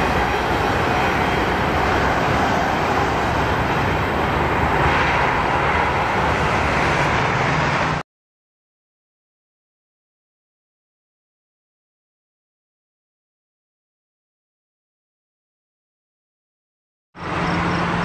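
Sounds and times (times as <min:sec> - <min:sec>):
freight train rolling: 0:00.0 - 0:08.0, 0:17.2 - 0:18.0
highway traffic noise: 0:00.0 - 0:08.0, 0:17.2 - 0:18.0.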